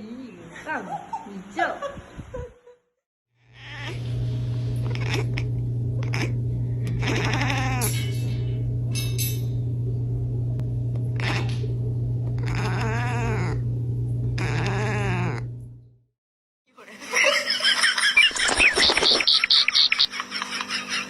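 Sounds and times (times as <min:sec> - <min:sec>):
steady low hum: 0:03.5 - 0:16.0
wavering bleating calls: 0:07.0 - 0:07.9.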